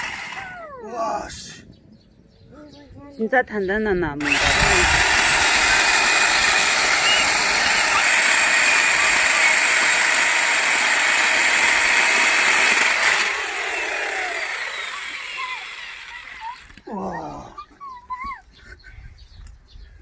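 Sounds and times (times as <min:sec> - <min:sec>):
electric chainsaw cutting wood: 0:00.0 - 0:00.6, 0:04.2 - 0:16.9.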